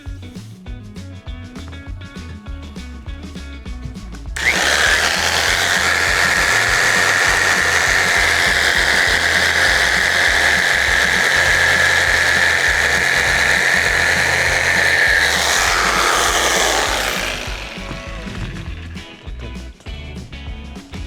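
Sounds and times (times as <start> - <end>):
power tool whining: 4.4 - 19.4.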